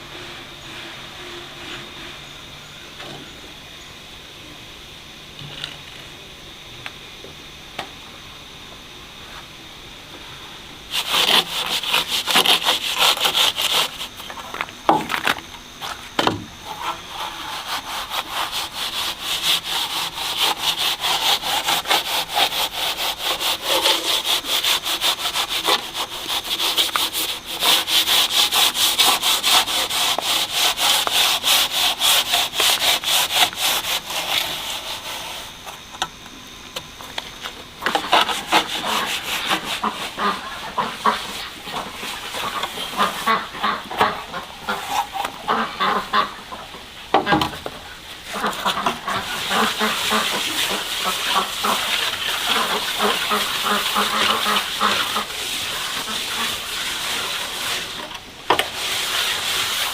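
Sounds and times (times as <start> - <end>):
hand tool rubbing hard surface: 10.9 - 16.0, 16.6 - 35.8, 37.9 - 46.0, 48.3 - 58.0, 58.6 - 59.9.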